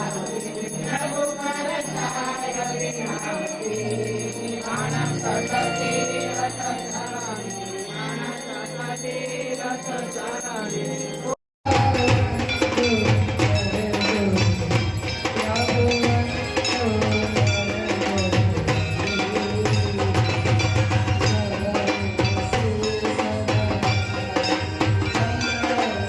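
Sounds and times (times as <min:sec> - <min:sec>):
music with singing and bells: 0:00.0 - 0:26.0
music with percussive beat: 0:11.7 - 0:26.0.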